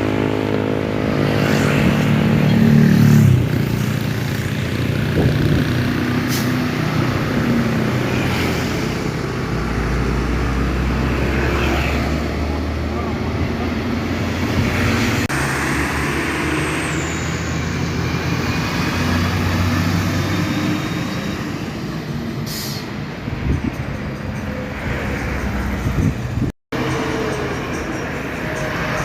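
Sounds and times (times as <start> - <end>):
sharp hiss of air: 22.4 - 23.0.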